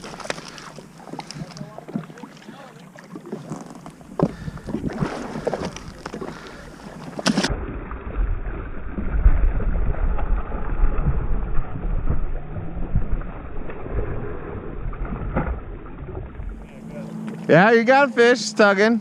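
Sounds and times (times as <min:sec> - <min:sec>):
water noise: 0:00.0 - 0:19.0
gusty low rumble: 0:07.5 - 0:17.0.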